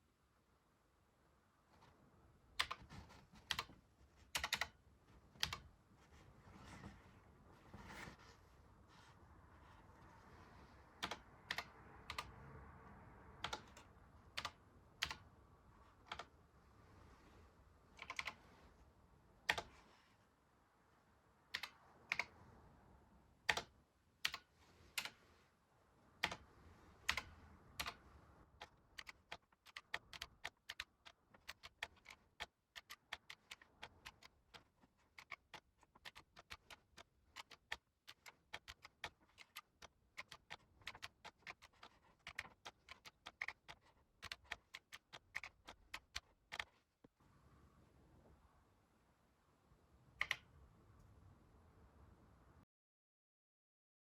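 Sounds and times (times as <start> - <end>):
computer keyboard typing: 2.6 - 4.8, 5.4 - 5.7, 11.0 - 12.4, 13.4 - 15.3, 15.9 - 16.4, 18.0 - 18.4, 19.4 - 19.8, 21.5 - 22.3, 23.4 - 25.2, 26.2 - 46.8, 50.2 - 50.5.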